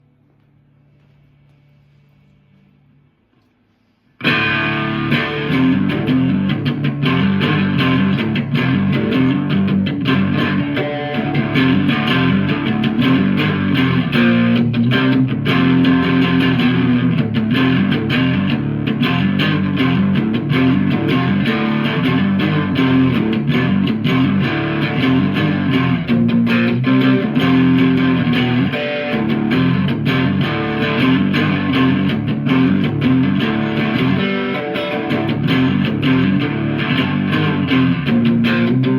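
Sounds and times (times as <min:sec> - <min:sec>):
electric guitar playing: 0:04.2 - 0:38.9.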